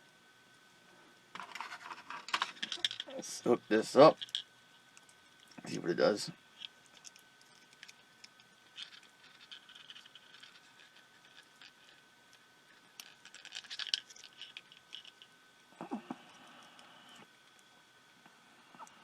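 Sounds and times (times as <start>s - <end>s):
electronic parts clicking and scratching: 1.4s - 3.2s, 6.6s - 12.1s, 12.7s - 15.3s.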